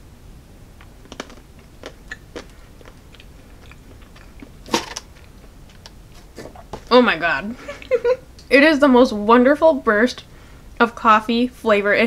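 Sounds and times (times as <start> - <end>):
person chewing chocolate: 0.8 - 6.8.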